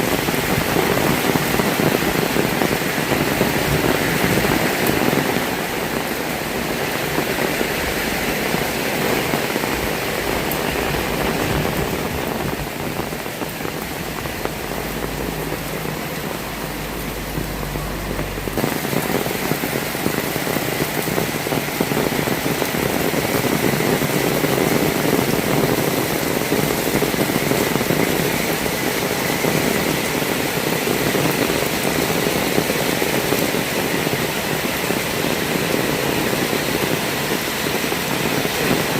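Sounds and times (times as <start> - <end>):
heavy rain hissing: 0.0 - 38.9
low rumble: 10.8 - 20.5.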